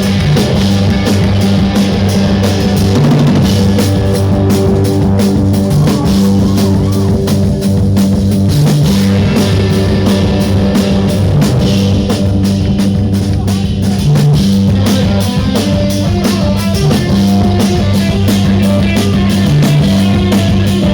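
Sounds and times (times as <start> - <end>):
drum kit: 0.0 - 20.9
electric guitar: 0.0 - 20.9
rock band playing: 0.0 - 20.9.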